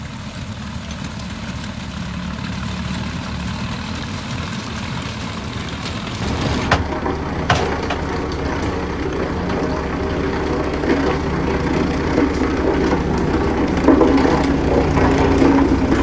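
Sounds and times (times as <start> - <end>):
heavy diesel engine running: 0.1 - 16.0
sharp metallic knocks: 6.2 - 16.0.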